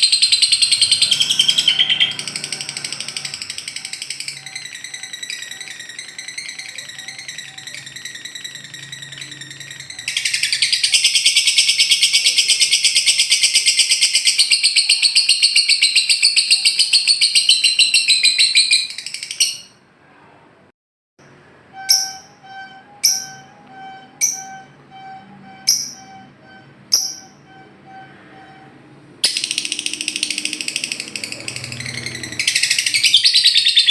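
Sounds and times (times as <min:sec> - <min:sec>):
bird rapid chattering trill: 0:00.0 - 0:19.7, 0:29.2 - 0:33.9.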